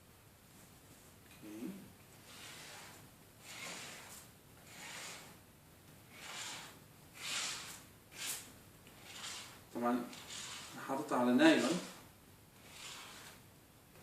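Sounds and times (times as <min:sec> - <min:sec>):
glue spreading swishes: 0:06.1 - 0:10.8.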